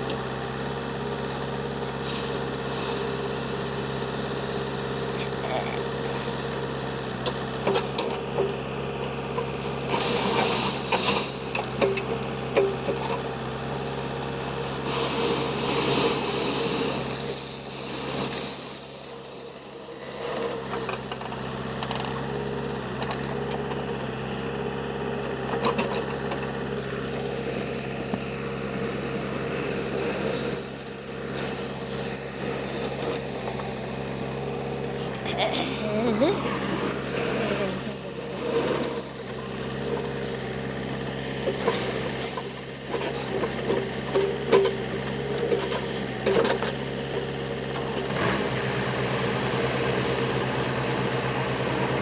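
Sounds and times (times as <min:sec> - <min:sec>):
diesel engine running: 0:00.0 - 0:52.0
gravel scraping and rattling: 0:01.7 - 0:52.0.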